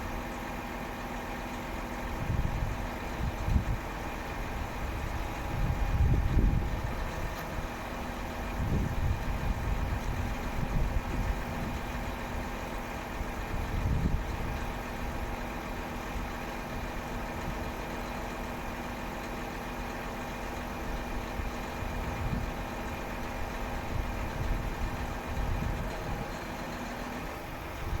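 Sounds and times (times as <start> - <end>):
truck diesel engine idling: 0.0 - 28.0
wind buffeting microphone: 2.0 - 15.5, 20.9 - 26.6.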